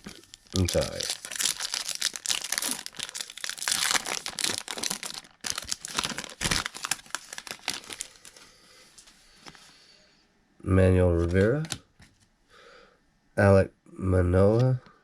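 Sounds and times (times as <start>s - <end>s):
wrapper tearing and crinkling: 0.0s - 8.4s.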